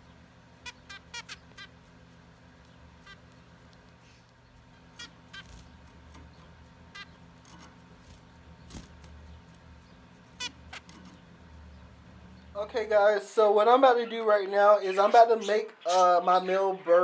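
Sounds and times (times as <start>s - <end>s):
finches calling faintly: 0.0s - 12.9s
low steady hum: 0.0s - 14.6s.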